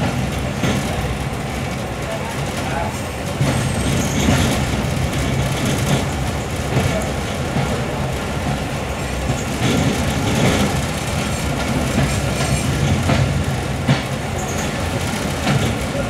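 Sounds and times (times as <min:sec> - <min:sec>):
train rumbling along track: 0:00.0 - 0:16.0
wheels clacking over rail joints: 0:00.0 - 0:16.0.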